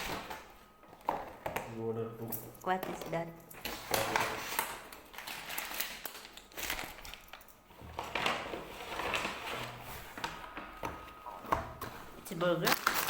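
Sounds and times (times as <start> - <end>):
food packaging crinkling: 3.6 - 11.4, 12.4 - 13.0.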